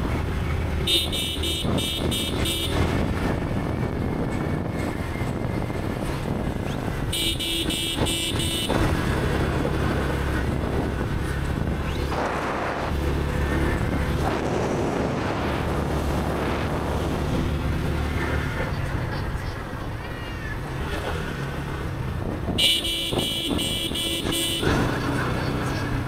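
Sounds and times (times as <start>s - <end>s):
vehicle horn honking: 0.8s - 3.0s, 7.1s - 8.9s, 22.6s - 24.9s.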